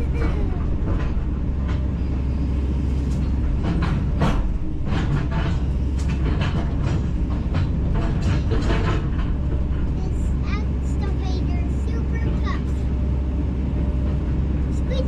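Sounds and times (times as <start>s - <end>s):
excavator diesel engine running: 0.0s - 15.0s
metallic clanks and knocks: 3.1s - 10.0s.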